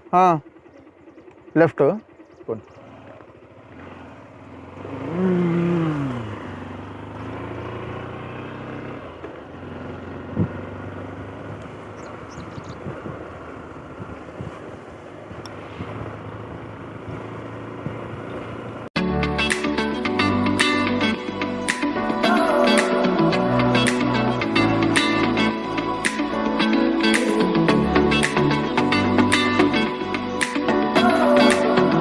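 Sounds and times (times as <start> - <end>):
motorcycle engine running: 0.0 - 32.0
rising and falling tone: 4.8 - 8.2, 19.0 - 32.0
wind buffeting microphone: 11.5 - 18.4.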